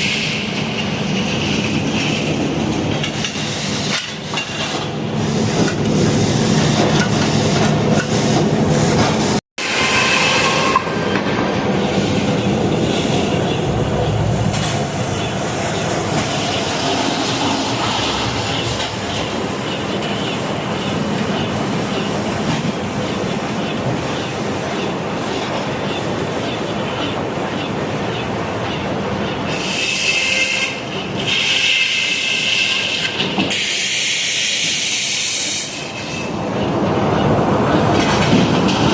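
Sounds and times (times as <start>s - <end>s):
saw blade squealing: 9.6s - 11.2s.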